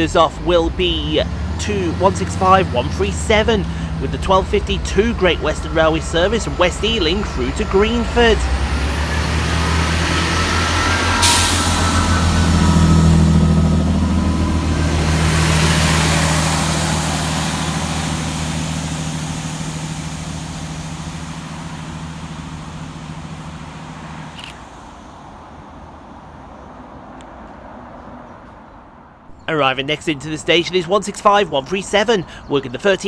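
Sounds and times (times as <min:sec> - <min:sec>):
train engines pulling away: 0:00.0 - 0:33.0
sharp air hiss: 0:10.3 - 0:13.8.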